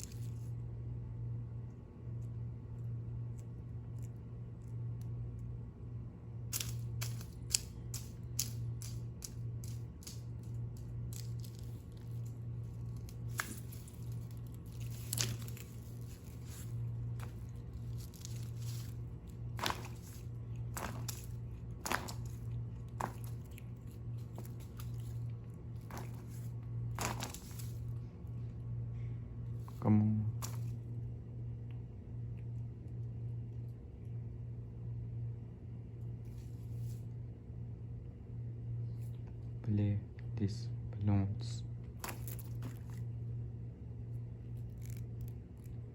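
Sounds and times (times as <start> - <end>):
steady low hum: 0.0 - 45.9
cat clawing a rubber balloon: 6.5 - 27.9.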